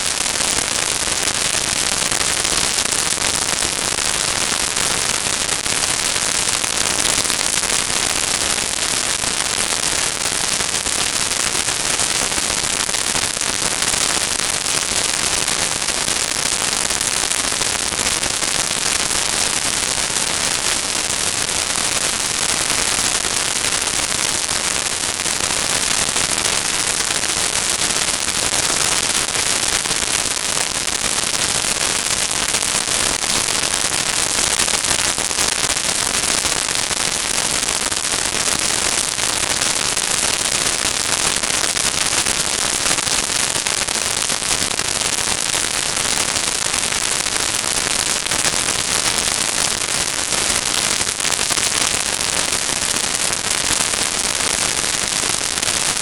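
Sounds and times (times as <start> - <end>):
dense crackling noise: 0.0 - 56.0.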